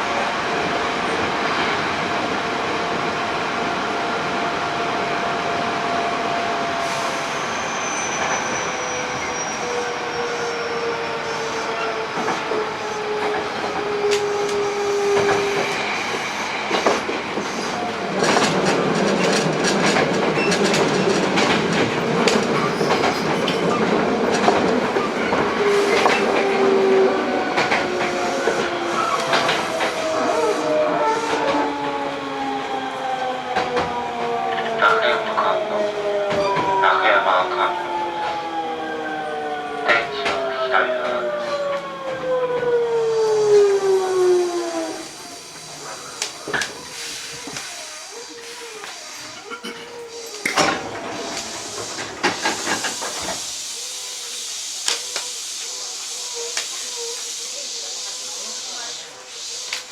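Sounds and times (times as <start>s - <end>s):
train running noise: 0.0s - 59.9s
electric train inverter whine: 21.2s - 49.5s.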